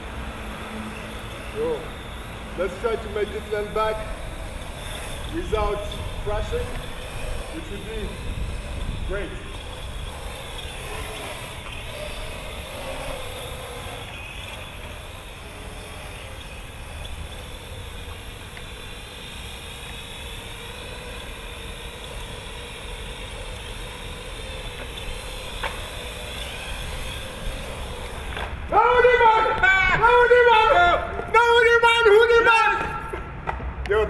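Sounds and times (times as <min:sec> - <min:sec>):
drone propellers whining: 0:00.0 - 0:33.6
wind on microphone: 0:04.0 - 0:13.9.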